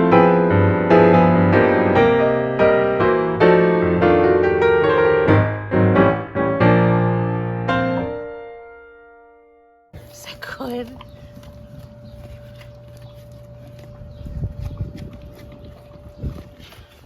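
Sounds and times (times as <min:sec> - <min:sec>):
piano playing chords: 0:00.0 - 0:10.0.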